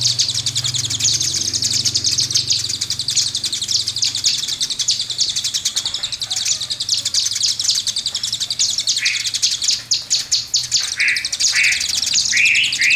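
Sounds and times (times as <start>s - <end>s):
short rising bird chirps: 0.0s - 5.8s
songbird rapid trill: 0.0s - 12.9s.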